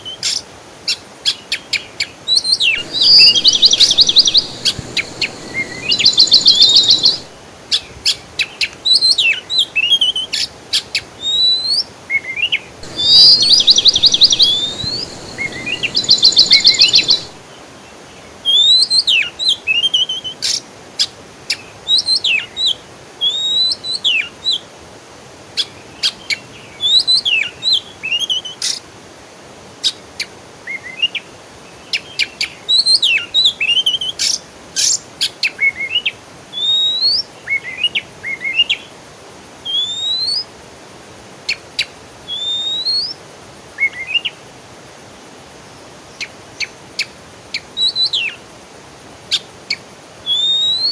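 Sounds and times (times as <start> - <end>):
songbird singing: 2.7 - 7.4, 12.8 - 17.4
bird trill: 2.8 - 7.4, 12.8 - 17.4.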